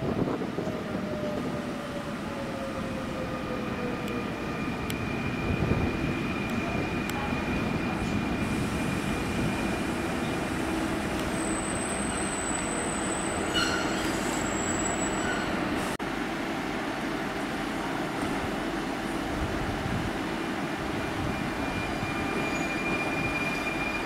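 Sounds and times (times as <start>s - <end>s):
electric train braking to a stop: 0.9s - 16.0s, 20.9s - 24.0s
high-pitched wheel squeal: 11.3s - 15.6s, 21.2s - 24.0s.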